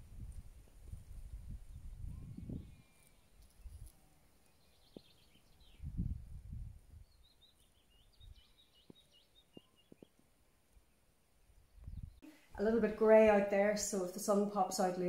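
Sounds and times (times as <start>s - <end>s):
quiet outdoor background noise: 0.0s - 15.0s
small bird singing: 1.6s - 12.2s.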